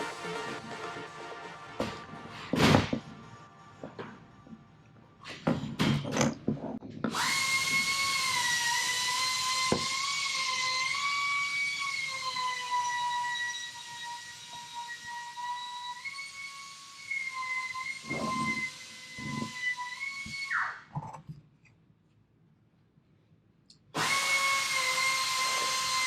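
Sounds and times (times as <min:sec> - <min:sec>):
power tool whining: 0:07.1 - 0:20.8, 0:24.0 - 0:26.0.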